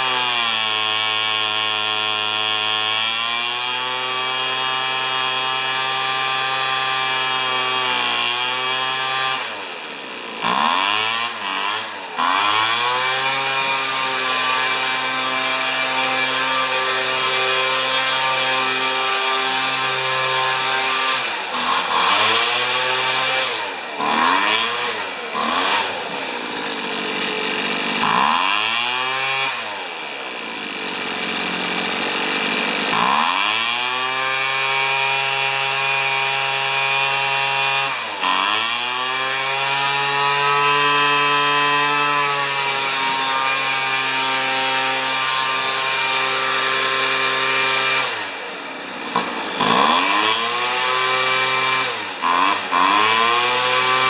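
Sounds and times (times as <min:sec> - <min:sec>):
leaf blower engine revving: 0:00.0 - 0:54.0.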